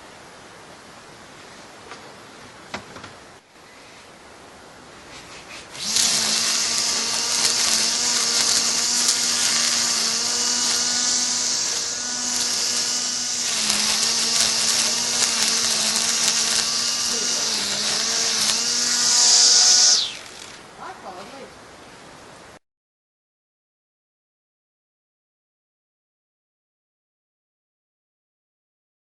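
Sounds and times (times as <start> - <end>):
electric sander whining: 5.7 - 20.6.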